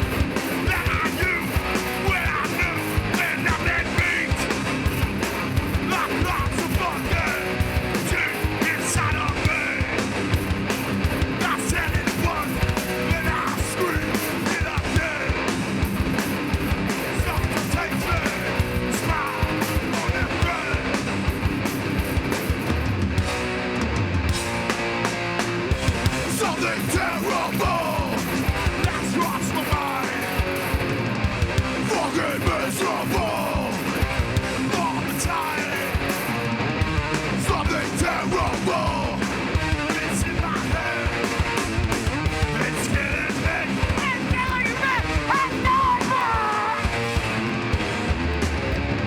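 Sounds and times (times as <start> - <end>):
bass guitar: 0.0 - 49.0
distorted electric guitars: 0.0 - 49.0
drums: 0.0 - 49.0.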